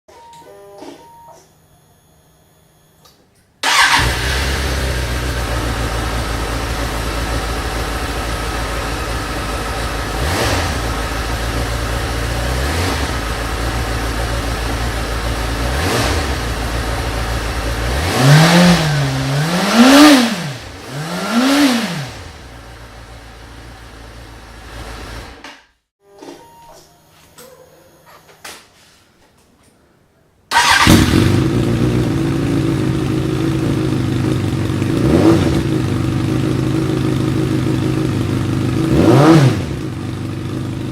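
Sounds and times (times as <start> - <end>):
motorcycle engine idling and revving: 3.6 - 25.5, 30.5 - 40.9.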